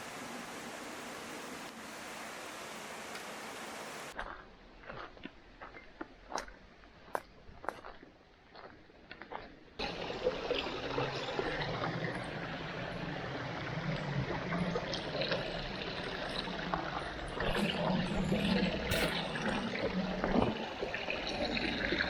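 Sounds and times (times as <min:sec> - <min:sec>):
stream trickling: 0:00.0 - 0:04.2, 0:09.8 - 0:22.0.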